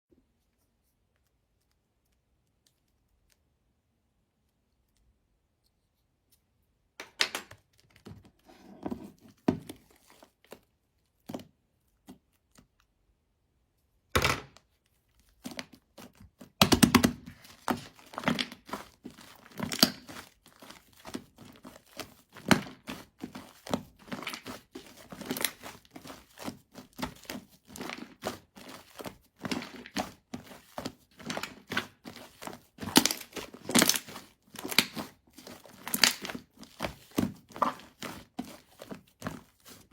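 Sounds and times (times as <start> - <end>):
slime crackling and popping: 16.4 - 39.8.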